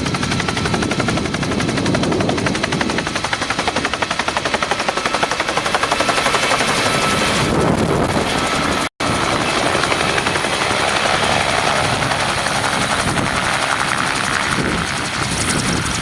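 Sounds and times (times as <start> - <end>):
helicopter rotor chopping: 0.0 - 16.0.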